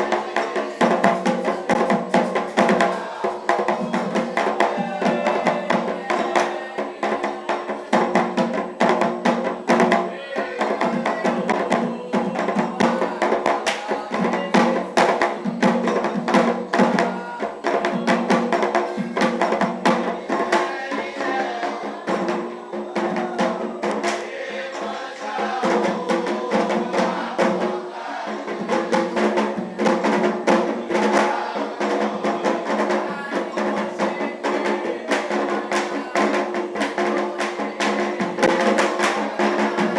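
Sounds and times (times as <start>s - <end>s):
hand drums playing fast rhythm: 0.0s - 39.9s
voices singing: 0.0s - 39.9s
sharp clicking percussion: 10.8s - 22.5s, 23.2s - 25.0s.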